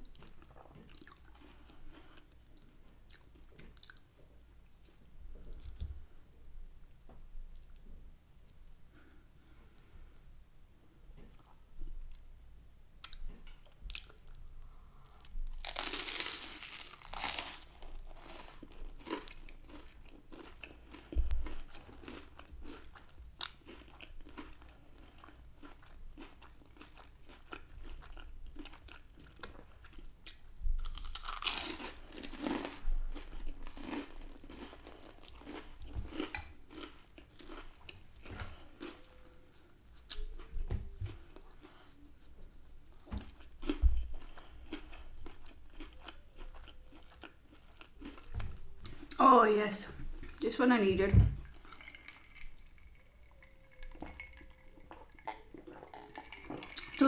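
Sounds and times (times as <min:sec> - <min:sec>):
chewing with wet mouth clicks: 0:00.2 - 0:04.0, 0:43.4 - 0:48.3, 0:51.5 - 0:57.0
loud crunchy bites: 0:15.6 - 0:20.4, 0:30.9 - 0:37.6.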